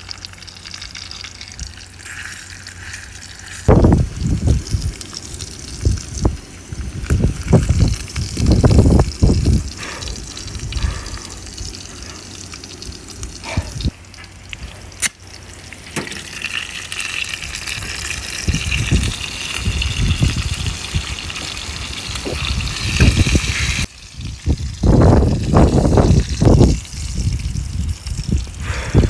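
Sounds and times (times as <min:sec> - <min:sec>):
steady hiss: 0:01.1 - 0:29.0
wind buffeting microphone: 0:03.7 - 0:14.0, 0:17.4 - 0:29.0.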